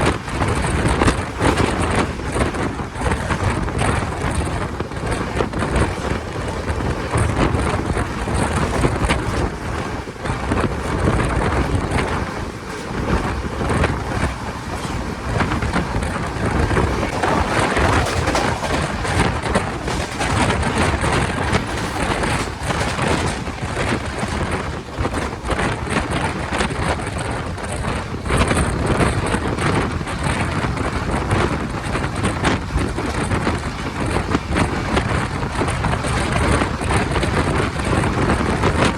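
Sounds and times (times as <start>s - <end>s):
train wheels rumbling on rails: 0.0s - 38.9s
wind noise on microphone: 0.0s - 38.9s.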